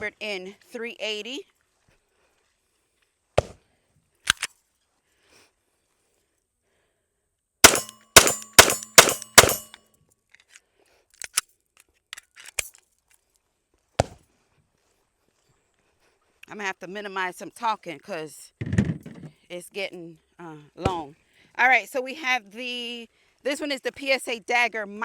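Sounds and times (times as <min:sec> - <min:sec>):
gun handling clicks: 0:04.3 - 0:04.5, 0:07.6 - 0:09.8, 0:11.2 - 0:12.8
pistol shots: 0:07.6 - 0:09.8.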